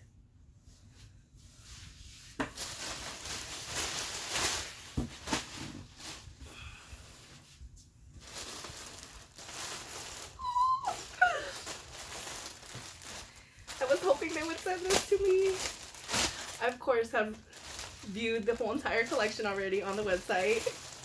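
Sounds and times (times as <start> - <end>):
packaging rustling and crinkling: 2.4 - 6.4, 8.2 - 21.0
dog whining: 10.4 - 11.6.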